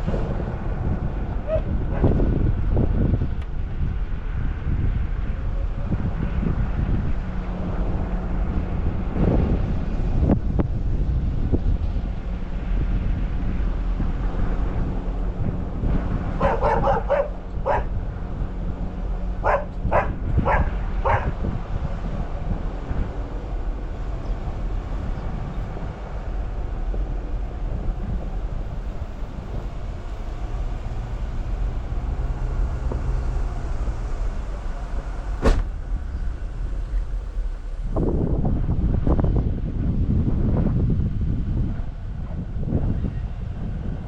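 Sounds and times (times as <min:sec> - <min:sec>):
car driving rumble: 0:00.0 - 0:44.0
dog barking: 0:01.4 - 0:02.2, 0:16.4 - 0:18.0, 0:19.4 - 0:21.4.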